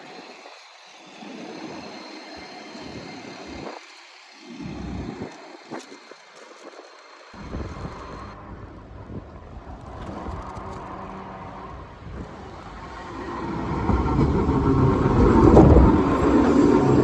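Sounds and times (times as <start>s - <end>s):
train rumbling on track: 7.4s - 17.0s.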